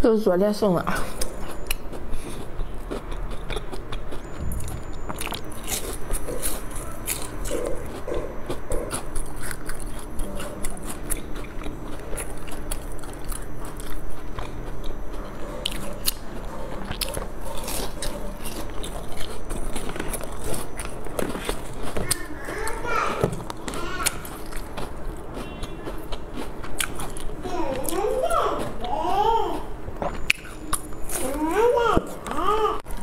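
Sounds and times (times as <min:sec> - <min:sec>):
person biting and chewing food: 0:01.0 - 0:28.9, 0:29.6 - 0:31.4
crisp clicks and crunches: 0:02.4 - 0:28.0.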